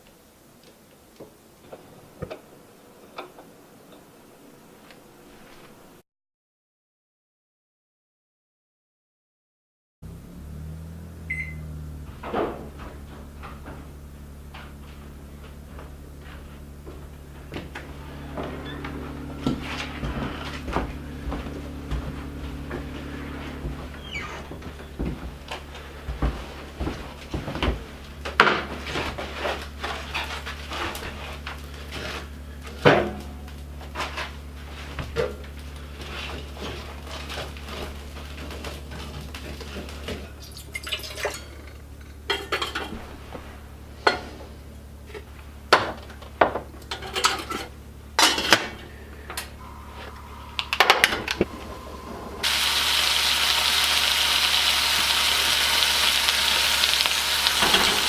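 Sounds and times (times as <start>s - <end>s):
steady low hum: 10.0s - 34.8s, 41.3s - 53.8s
pans and utensils clattering: 36.2s - 43.1s, 45.1s - 48.9s, 56.8s - 58.0s
food sizzling in a pan: 52.4s - 58.0s.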